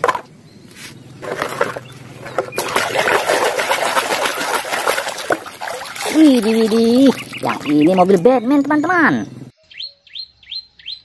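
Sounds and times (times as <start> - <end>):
water splashing and sloshing: 1.2 - 8.7.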